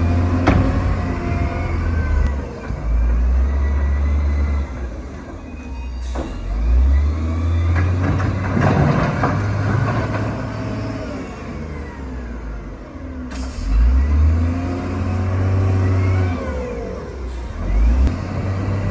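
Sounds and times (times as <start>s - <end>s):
diesel engine droning: 0.0s - 18.9s
clattering and scraping: 7.8s - 10.6s.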